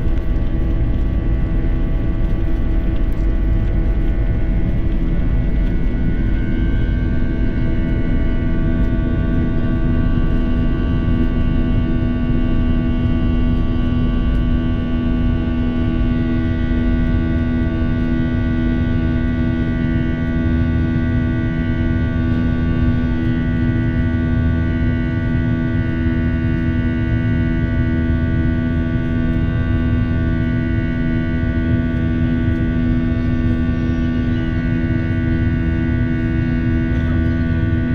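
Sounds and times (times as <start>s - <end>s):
jet engines rumbling and whining: 0.0s - 37.9s.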